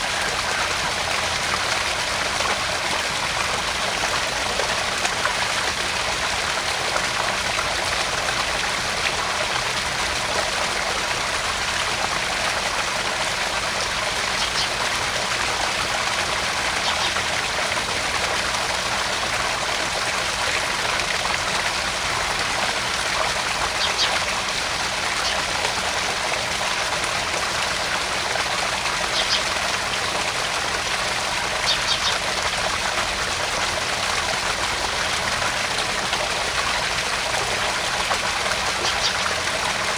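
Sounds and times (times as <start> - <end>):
water splashing into pond: 0.0 - 39.9
faint high splashing ticks: 13.7 - 15.0, 16.6 - 17.3, 23.2 - 24.4, 28.9 - 30.2, 31.5 - 32.6, 37.9 - 39.6.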